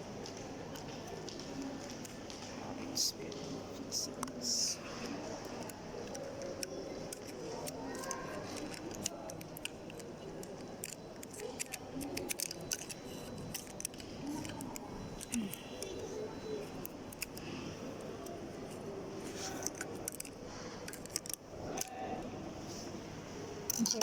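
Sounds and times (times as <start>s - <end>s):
screwdriver and parts rattling: 19.4s - 21.9s.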